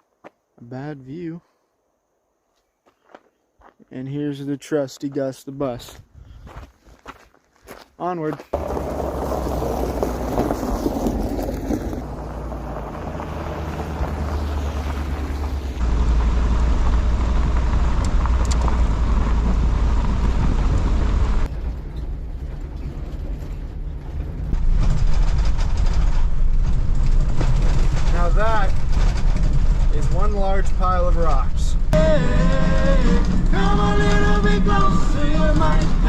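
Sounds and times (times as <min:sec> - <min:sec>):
bus engine and road rumble: 0:08.6 - 0:36.0.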